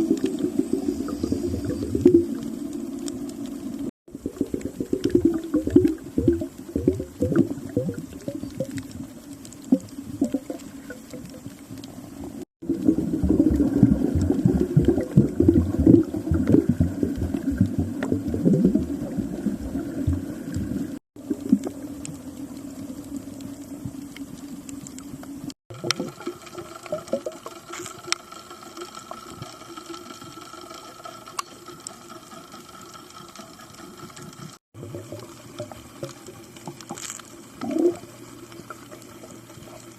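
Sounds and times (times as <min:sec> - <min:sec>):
faint steady hum: 0:00.0 - 0:39.9
underwater bubbling and crackling: 0:00.0 - 0:39.9.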